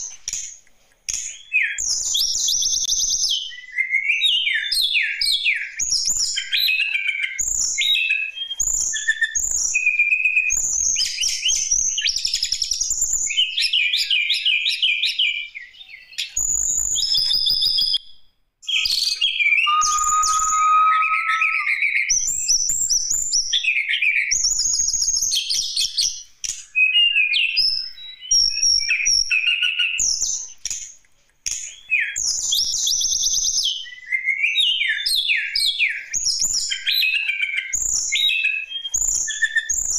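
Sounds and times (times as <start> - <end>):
bird singing chirps and trills: 18.8 - 21.8.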